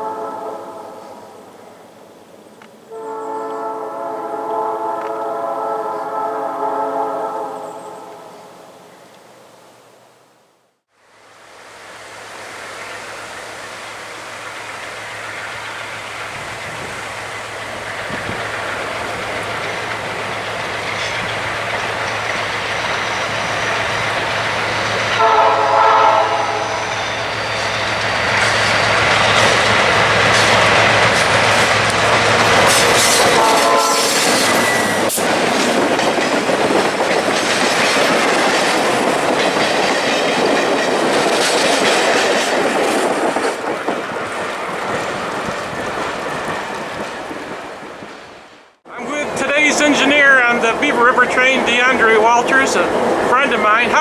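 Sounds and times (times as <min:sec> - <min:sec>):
train horn: 0:00.0 - 0:01.7, 0:02.9 - 0:08.9, 0:17.7 - 0:35.2
diesel train passing: 0:00.0 - 0:54.0
wheels clattering over rail joints: 0:12.1 - 0:54.0.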